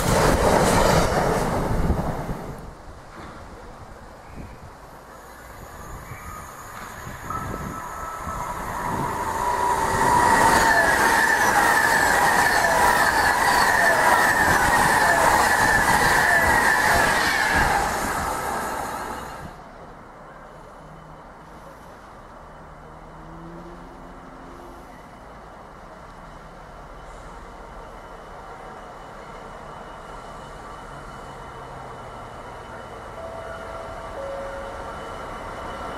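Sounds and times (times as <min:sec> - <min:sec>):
train passing close by: 0:00.0 - 0:35.9
high ringing tone: 0:05.3 - 0:14.0, 0:32.7 - 0:35.9.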